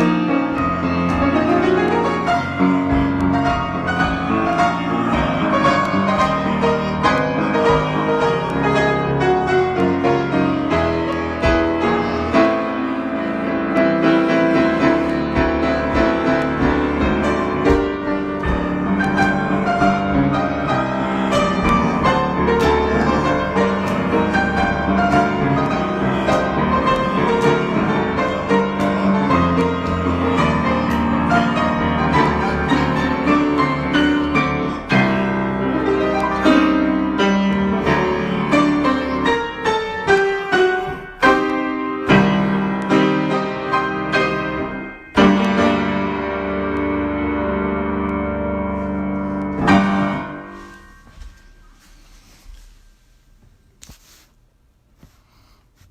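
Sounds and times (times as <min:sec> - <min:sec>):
piano improvisation: 0:00.0 - 0:55.9.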